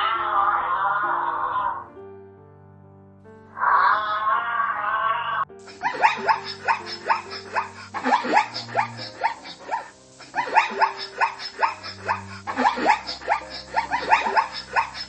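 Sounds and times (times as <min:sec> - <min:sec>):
small dogs yapping: 0:05.7 - 0:15.0.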